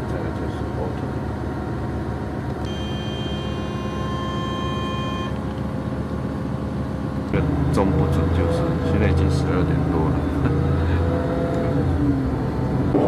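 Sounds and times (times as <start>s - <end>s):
train rumbling: 0.0s - 13.0s
high multi-tone squeal: 2.6s - 5.6s.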